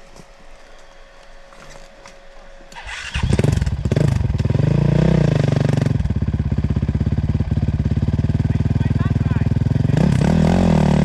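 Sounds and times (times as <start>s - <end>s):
dirt bike engine starting and idling: 2.7s - 11.0s.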